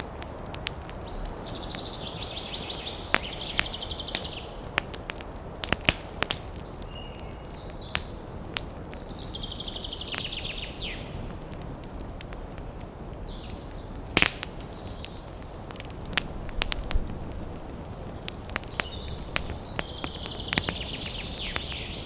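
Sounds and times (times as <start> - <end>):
campfire crackling and popping: 0.0 - 22.0
wind in the trees: 0.0 - 22.0.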